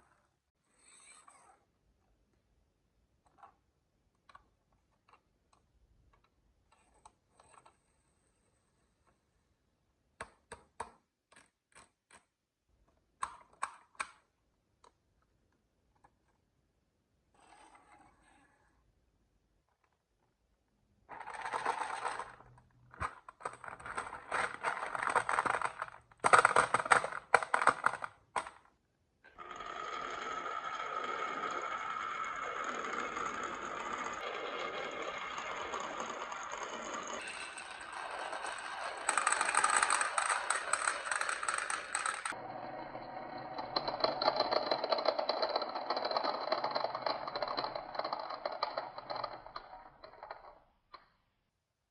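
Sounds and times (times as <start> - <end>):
marbles rolling down wooden track: 21.1 - 28.6, 29.3 - 50.7.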